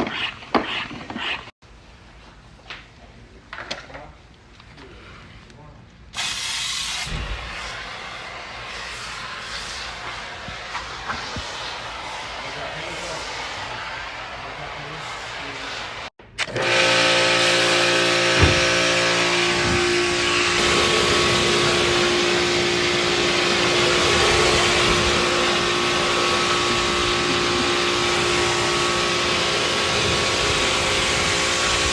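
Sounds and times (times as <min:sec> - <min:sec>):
pressure washer running: 0:07.6 - 0:31.9.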